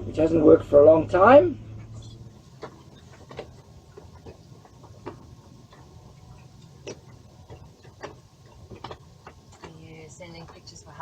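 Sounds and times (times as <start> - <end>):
faint low hum: 0.0 - 11.0
sharp clicks and taps on generator: 2.6 - 10.9.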